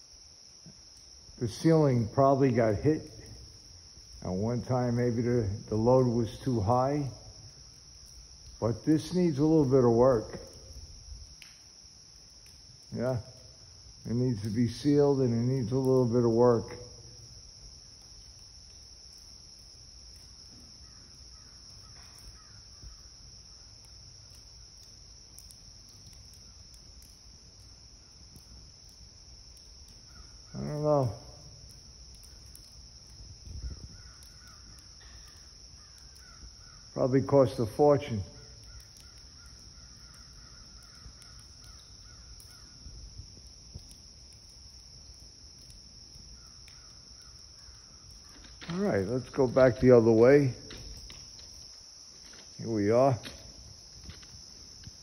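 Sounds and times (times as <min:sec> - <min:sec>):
crickets trilling: 0:00.0 - 0:55.0
distant crows cawing: 0:20.8 - 0:23.2, 0:30.0 - 0:30.6, 0:33.6 - 0:36.9, 0:38.4 - 0:42.9, 0:46.3 - 0:49.4.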